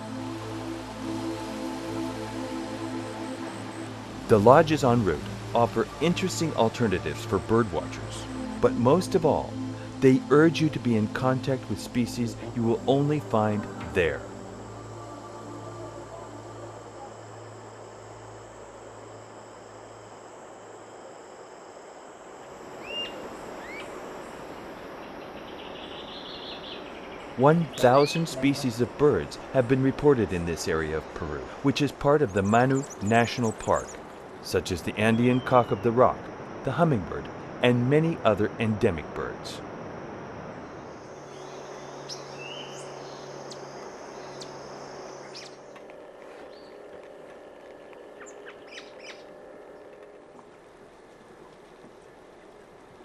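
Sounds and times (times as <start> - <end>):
high-pitched insect trill: 0.0 - 50.5
faint low hum: 0.0 - 53.0
steady background hiss: 0.0 - 53.0
bird whistling upward calls: 22.8 - 23.9, 41.2 - 44.6
rising bird call: 22.8 - 24.0.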